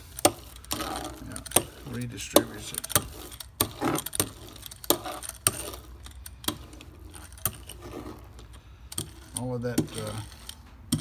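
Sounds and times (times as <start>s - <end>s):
laminating roller rolling rattle: 0.0s - 11.0s
sharp irregular clicks: 0.1s - 7.8s.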